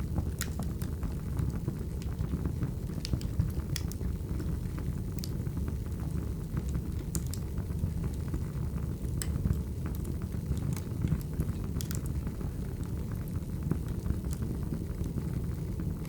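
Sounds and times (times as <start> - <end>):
low rumble of burning logs: 0.0 - 16.0
wood fire crackling and popping: 0.0 - 16.0.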